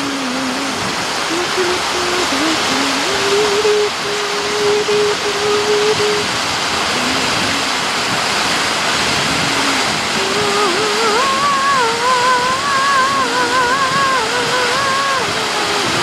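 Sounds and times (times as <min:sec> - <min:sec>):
soft held musical tone: 0:00.0 - 0:06.2
wavering theremin-like melody: 0:00.0 - 0:06.3, 0:09.4 - 0:16.0
waterfall rushing: 0:00.0 - 0:16.0.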